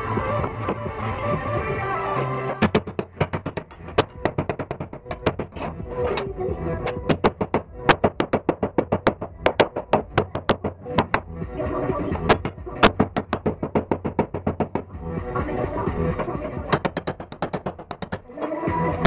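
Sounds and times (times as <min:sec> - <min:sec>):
hammer tapping sheet metal: 0:02.6 - 0:06.2, 0:06.8 - 0:11.3, 0:12.3 - 0:15.0, 0:16.2 - 0:18.5.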